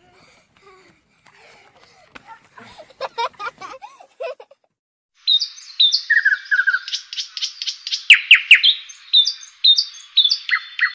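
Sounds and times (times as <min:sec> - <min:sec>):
birds chirping: 0:05.2 - 0:10.9
downward-sweeping bird whistles: 0:05.3 - 0:10.9.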